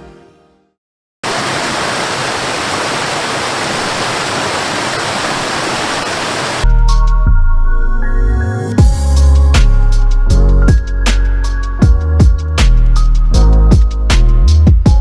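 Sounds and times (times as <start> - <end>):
music with deep bass: 6.7 - 15.0.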